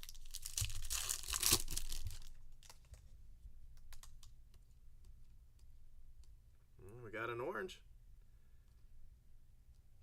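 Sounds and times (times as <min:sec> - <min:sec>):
foil wrapper tearing open: 0:00.0 - 0:02.8.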